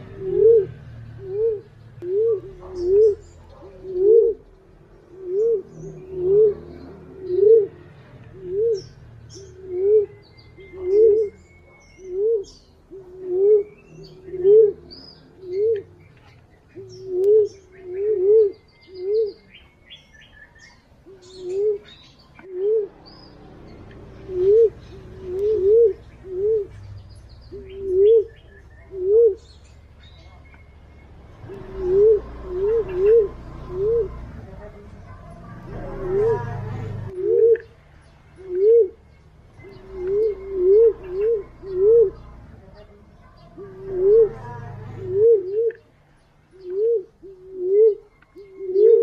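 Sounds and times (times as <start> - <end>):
pigeon cooing: 0.0 - 19.7, 21.0 - 23.1, 24.0 - 30.7, 31.4 - 49.0
faint high bird chirps: 8.6 - 34.2.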